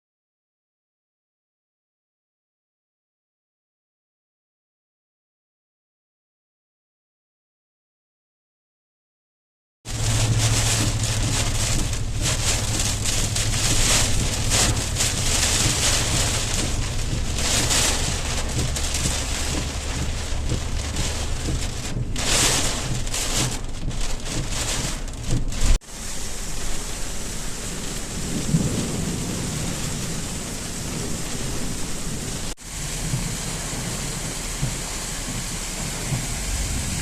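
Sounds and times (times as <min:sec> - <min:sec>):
heavy rain pouring: 0:09.9 - 0:37.0
wind buffeting microphone: 0:09.9 - 0:37.0.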